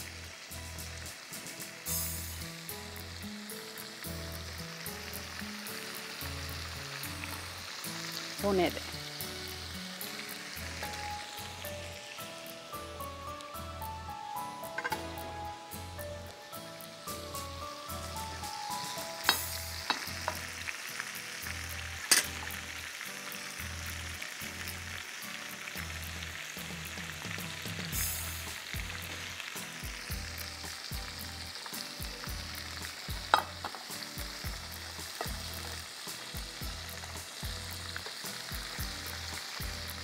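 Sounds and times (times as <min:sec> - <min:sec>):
chicken deep-frying in oil: 0:00.0 - 0:40.0
utensil clinking against pan: 0:22.1 - 0:22.3.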